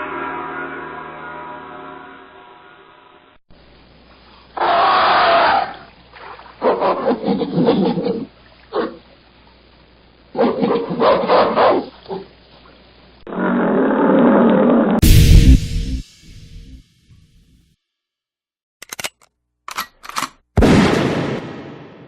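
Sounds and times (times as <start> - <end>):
animal roaring: 4.6 - 5.9, 13.3 - 15.0.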